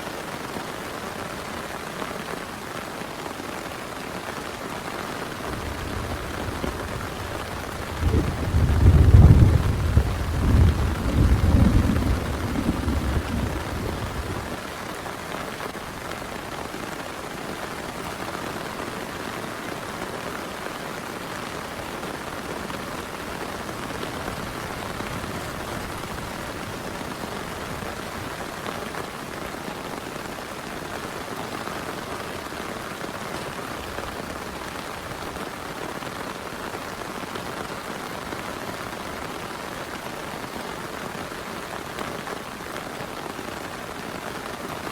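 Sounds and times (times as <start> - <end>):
heavy rain falling: 0.0 - 44.9
low thunder rumble: 5.4 - 14.7.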